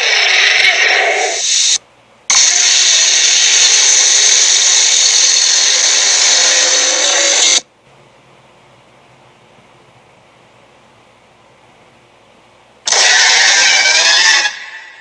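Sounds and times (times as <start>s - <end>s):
harsh whirring cartoon effect: 0.0s - 7.6s, 12.9s - 15.0s.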